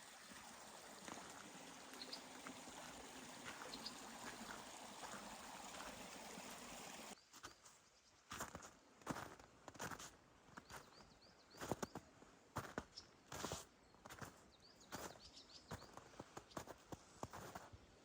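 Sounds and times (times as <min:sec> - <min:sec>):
water flowing over rocks: 0:00.0 - 0:07.2.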